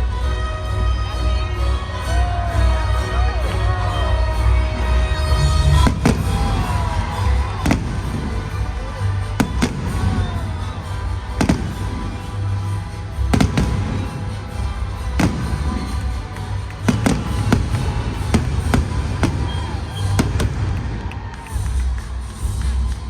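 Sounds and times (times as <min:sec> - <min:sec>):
loud music with heavy bass: 0:00.0 - 0:23.0
fireworks bursting bangs: 0:05.6 - 0:22.0.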